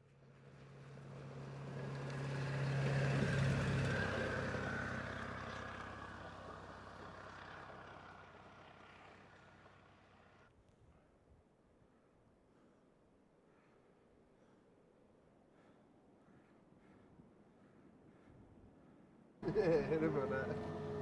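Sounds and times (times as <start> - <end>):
truck driving past: 0.2 - 10.5, 19.4 - 21.0.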